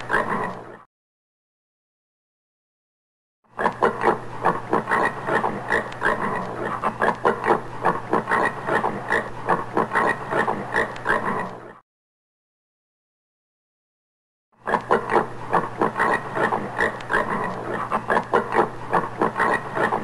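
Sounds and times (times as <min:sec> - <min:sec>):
warthog grunting: 0:14.6 - 0:20.0.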